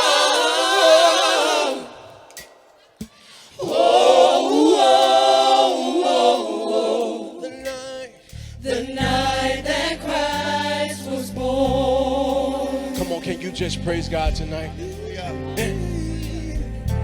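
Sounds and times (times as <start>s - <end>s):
choir singing: 0.0s - 2.8s, 3.5s - 17.0s
low bass notes: 8.3s - 17.0s.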